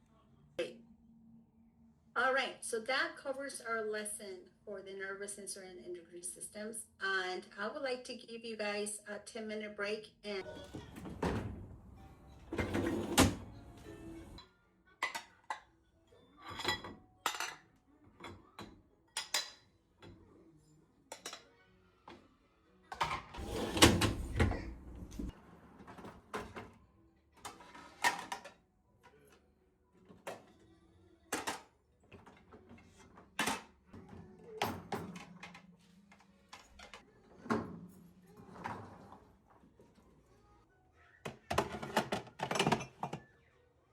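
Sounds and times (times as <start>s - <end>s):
music: 10.4s - 43.9s.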